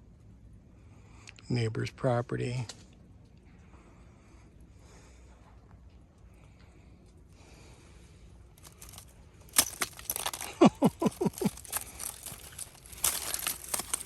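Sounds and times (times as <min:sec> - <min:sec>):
ice crackling and clinking: 0:08.6 - 0:14.0.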